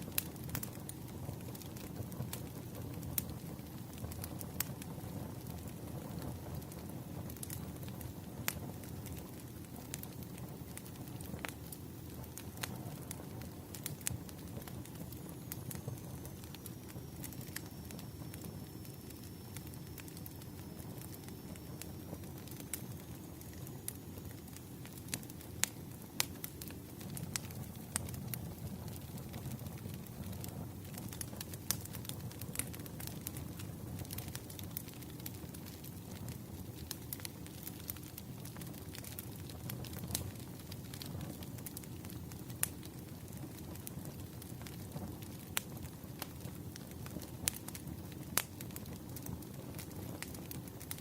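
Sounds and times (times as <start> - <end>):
fire rumbling: 0.0 - 51.0
firewood crackling and popping: 0.0 - 51.0.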